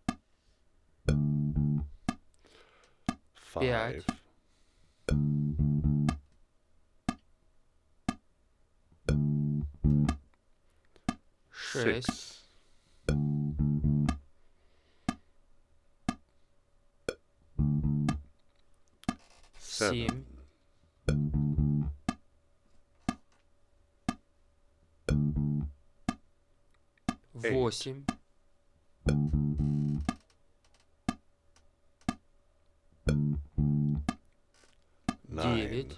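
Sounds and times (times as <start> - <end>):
metronome clicks: 0.0 - 0.2, 1.0 - 2.4, 4.0 - 4.2, 5.1 - 6.3, 7.1 - 7.3, 8.1 - 8.3, 9.0 - 10.4, 13.1 - 14.3, 16.1 - 16.3, 17.1 - 18.3, 19.0 - 19.3, 20.0 - 20.3, 21.1 - 22.2, 23.1 - 23.3, 25.1 - 26.2, 27.0 - 27.3, 29.0 - 30.4, 32.0 - 32.2, 33.1 - 34.4
electric bass guitar notes: 1.1 - 2.1, 5.1 - 6.2, 9.1 - 10.2, 13.1 - 14.2, 17.5 - 18.3, 21.1 - 22.2, 25.1 - 25.8, 29.0 - 30.2, 33.0 - 34.2.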